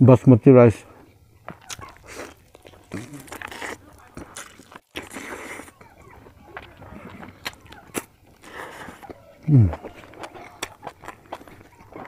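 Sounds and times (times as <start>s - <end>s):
man chewing and smacking: 1.0s - 12.0s.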